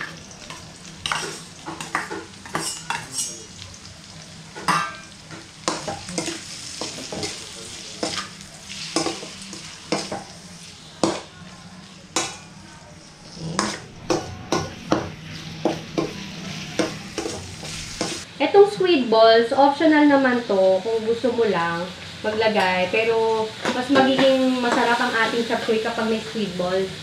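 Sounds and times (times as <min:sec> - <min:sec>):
chicken livers sizzling in a wok: 0:00.0 - 0:27.0
metal spoon scraping a pan: 0:00.5 - 0:03.4, 0:13.2 - 0:18.3.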